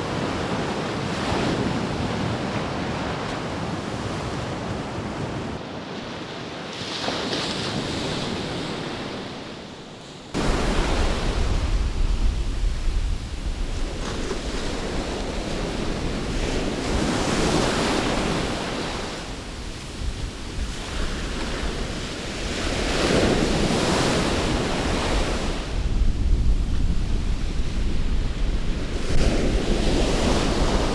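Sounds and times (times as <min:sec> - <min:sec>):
surf washing onto beach: 0:10.4 - 0:30.9
wind buffeting microphone: 0:10.4 - 0:30.9.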